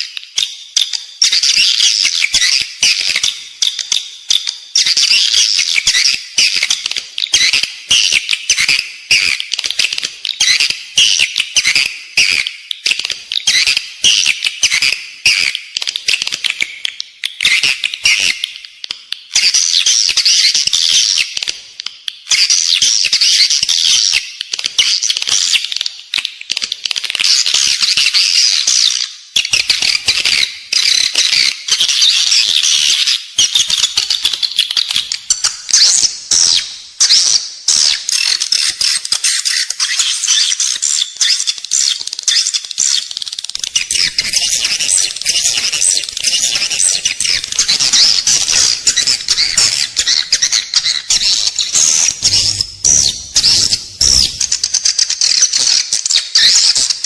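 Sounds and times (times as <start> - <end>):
swiftlets twittering: 43.6 - 55.2.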